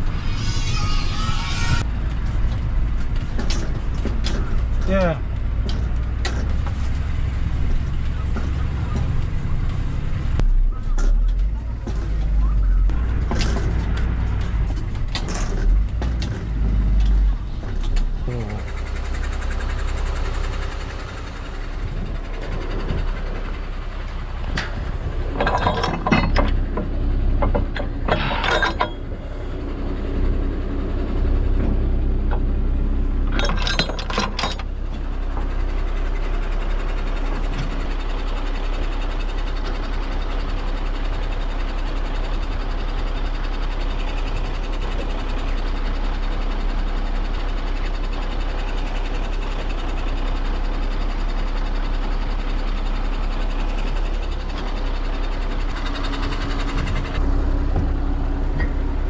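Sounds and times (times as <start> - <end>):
diesel engine running: 0.0 - 59.0
metal clinking and clanking: 24.4 - 29.6, 33.2 - 34.8.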